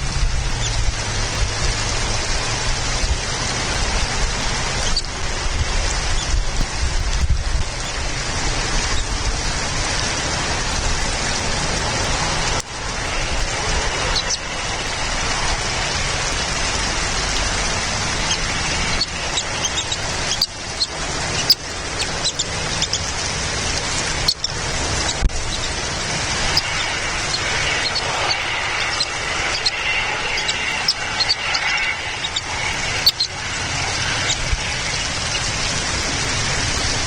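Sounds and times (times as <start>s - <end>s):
rain-like rushing noise: 0.0s - 37.0s
high bird chirps: 0.5s - 5.2s, 13.1s - 15.0s, 18.2s - 23.1s, 24.2s - 25.8s, 26.5s - 35.5s.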